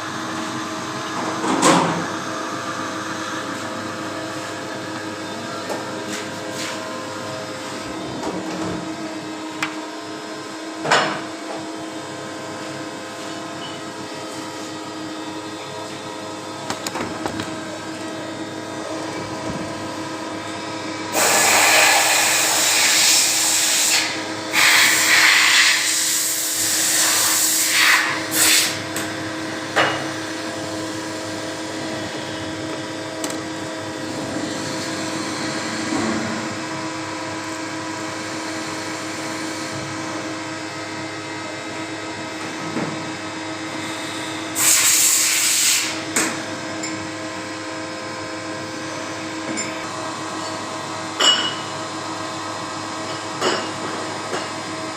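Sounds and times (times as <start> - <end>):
machine mechanical hum: 0.0 - 54.9
loud hissing bursts: 21.2 - 28.8.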